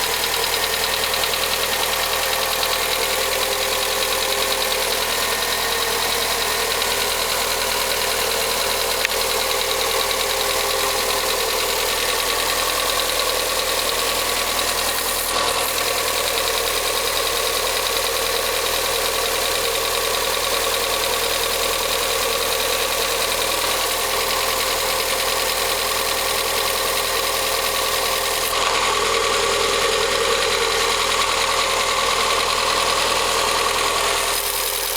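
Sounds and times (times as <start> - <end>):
valve train ticking noise: 0.0 - 14.4
car engine idling: 0.0 - 14.9, 15.8 - 34.3.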